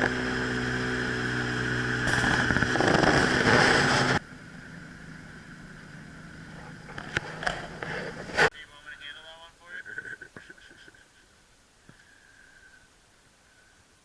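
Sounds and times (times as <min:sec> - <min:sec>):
boat motor running: 0:00.0 - 0:08.5
wind: 0:00.0 - 0:14.0
quiet steady background noise: 0:04.2 - 0:14.0.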